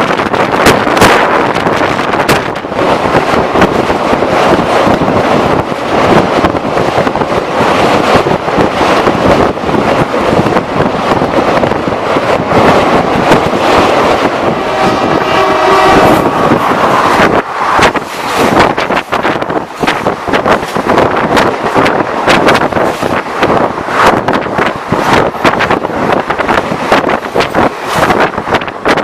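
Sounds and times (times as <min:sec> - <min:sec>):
passenger train passing at speed: 0:00.0 - 0:29.0
train horn: 0:14.4 - 0:17.0.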